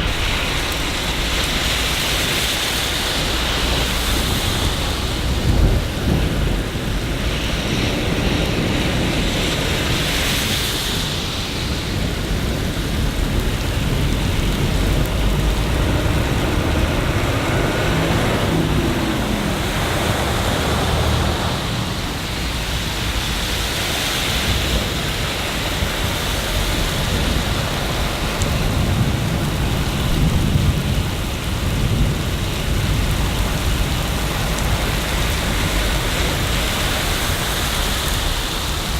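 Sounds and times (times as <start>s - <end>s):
rain falling: 0.0s - 38.9s
low rumble: 12.6s - 23.4s.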